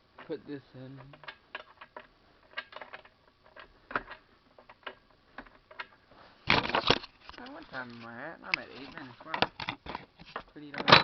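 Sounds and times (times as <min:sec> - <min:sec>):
metal parts clicking and tapping: 0:00.2 - 0:07.6.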